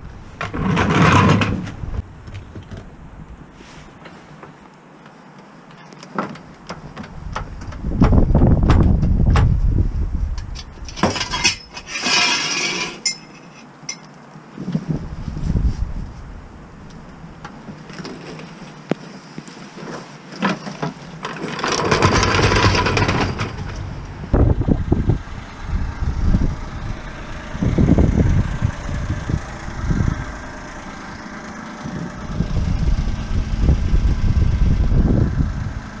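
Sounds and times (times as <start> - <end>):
car engine running: 22.2 - 36.0.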